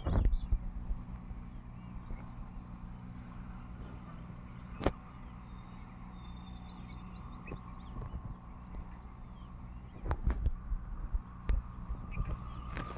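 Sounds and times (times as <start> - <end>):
small birds chirping: 0.0 - 12.9
steady low hum: 0.0 - 12.9.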